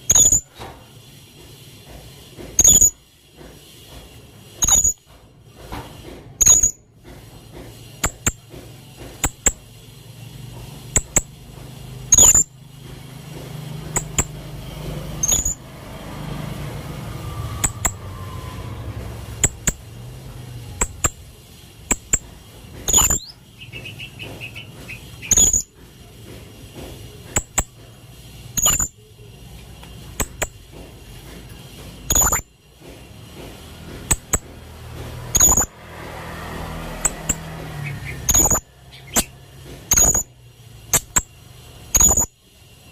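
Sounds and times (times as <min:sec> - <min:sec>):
parrot calling: 0:32.1 - 0:32.4.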